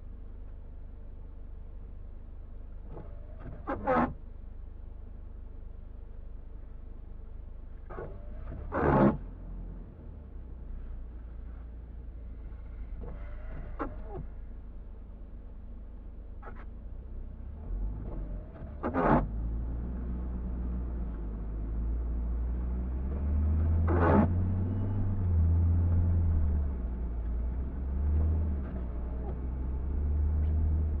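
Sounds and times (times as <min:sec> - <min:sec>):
car driving low rumble: 0:00.0 - 0:31.0.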